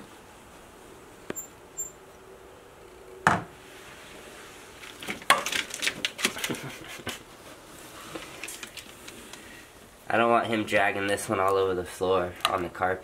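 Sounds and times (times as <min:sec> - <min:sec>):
hard objects clicking and rattling: 0:04.8 - 0:06.7.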